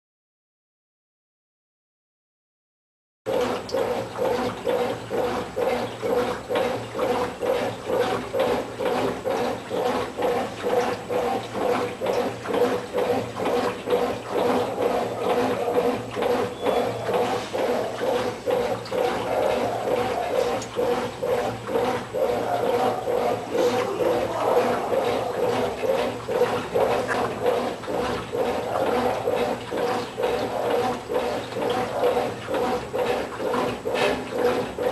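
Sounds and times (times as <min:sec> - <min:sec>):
washing machine agitating: 0:03.3 - 0:34.9.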